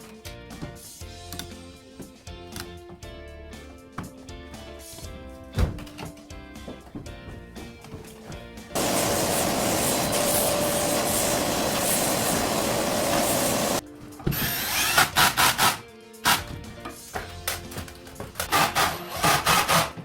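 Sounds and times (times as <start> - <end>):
faint background music: 0.0 - 8.8, 13.8 - 20.0
power tool running: 8.8 - 13.8.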